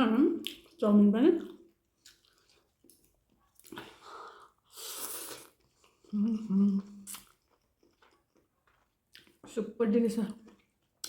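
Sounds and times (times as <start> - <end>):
noodles slurped: 4.6 - 6.1
person humming mmm: 6.1 - 7.2.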